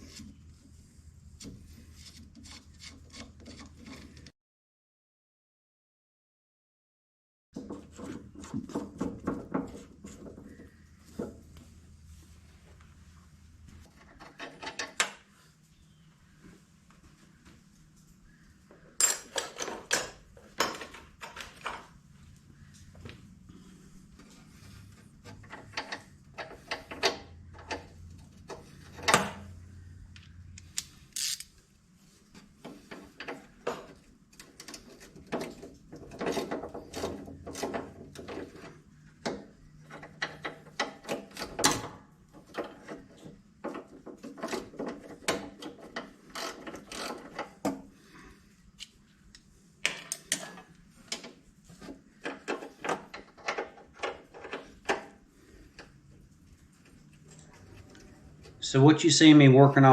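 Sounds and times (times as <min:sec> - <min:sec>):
ratchet wrench clicking: 0:30.8 - 0:31.5.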